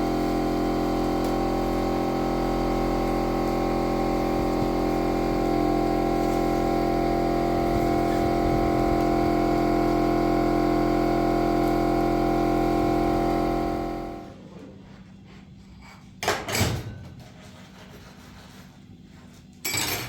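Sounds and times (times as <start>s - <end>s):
machine motor humming: 0.0s - 14.3s.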